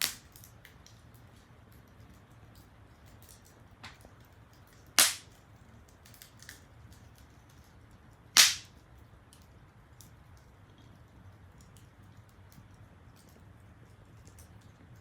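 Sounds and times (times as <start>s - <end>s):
loud pops from firewood: 0.0s - 0.4s, 5.0s - 5.3s, 8.4s - 8.7s
wood fire crackling: 0.0s - 15.0s.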